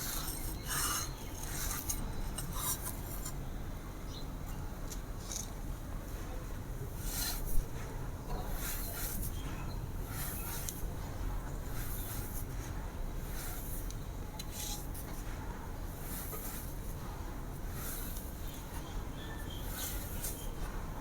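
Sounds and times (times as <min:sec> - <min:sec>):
dry sand crunching: 0:08.4 - 0:10.9, 0:15.9 - 0:20.9.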